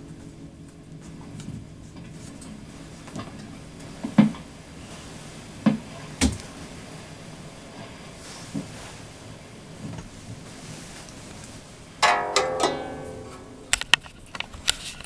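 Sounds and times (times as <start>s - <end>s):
sharp ringing knocks: 12.0s - 13.8s.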